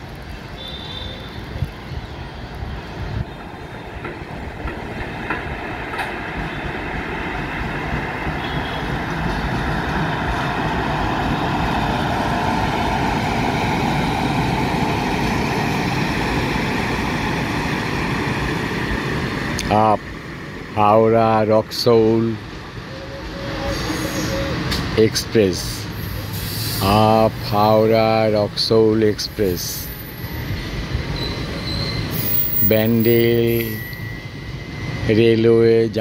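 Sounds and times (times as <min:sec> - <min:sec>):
train rumbling past: 0:00.0 - 0:36.0
wheels clicking over rail joints: 0:03.3 - 0:07.2.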